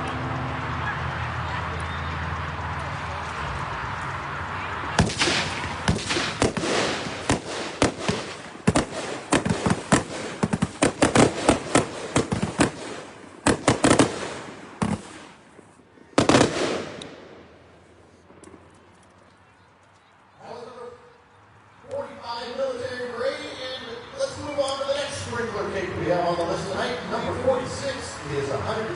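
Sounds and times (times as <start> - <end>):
firework bangs and crackles: 4.9 - 18.8.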